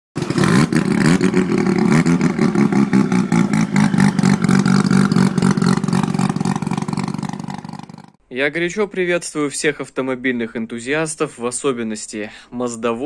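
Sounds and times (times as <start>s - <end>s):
car engine revving: 0.2s - 8.1s.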